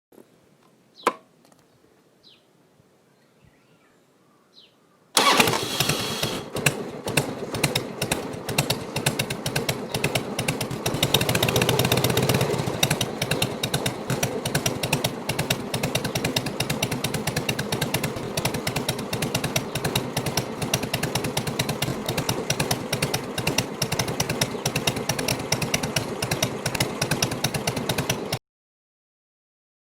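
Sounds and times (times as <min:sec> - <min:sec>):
motorcycle engine idling unevenly: 0:05.2 - 0:28.4.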